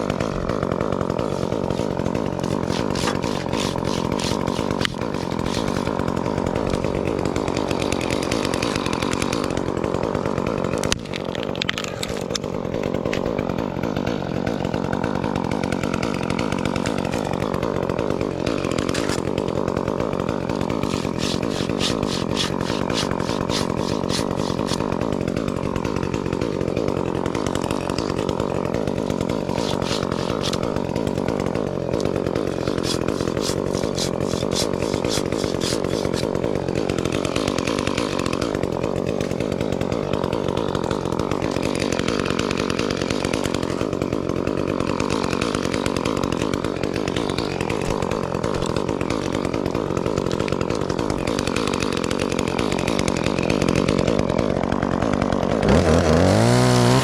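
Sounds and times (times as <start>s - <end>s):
chainsaw running: 0.0s - 57.0s.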